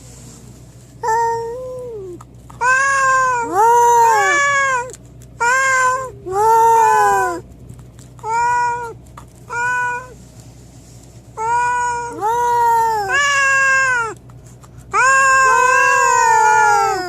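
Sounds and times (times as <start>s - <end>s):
cat meowing: 1.0s - 7.4s, 8.2s - 10.2s, 11.4s - 14.2s, 14.9s - 17.0s.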